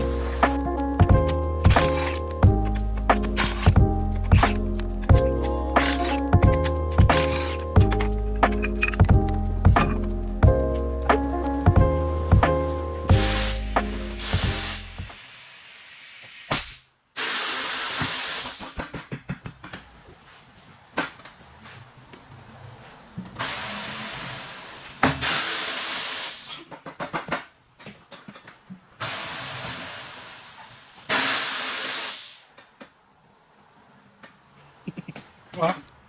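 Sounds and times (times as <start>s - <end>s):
air hose hissing: 13.0s - 18.8s, 23.4s - 26.7s, 29.0s - 32.5s.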